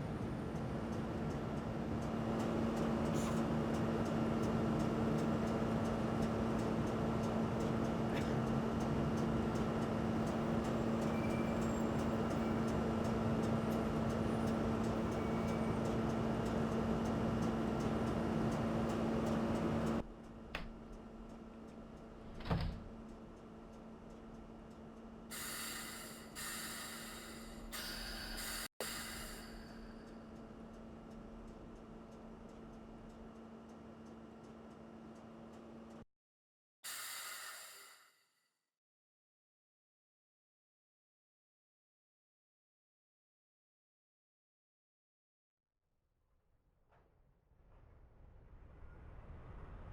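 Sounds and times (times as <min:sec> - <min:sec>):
train cab hum and rumble: 0:00.0 - 0:36.0.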